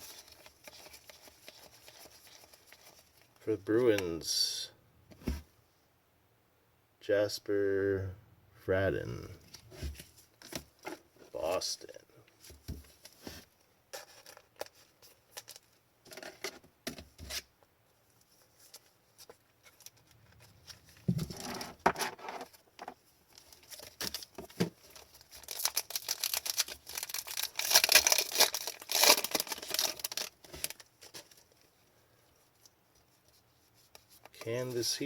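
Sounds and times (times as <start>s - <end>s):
cards clicking and rustling: 23.6s - 31.4s
foil wrapper tearing and crinkling: 25.1s - 31.4s.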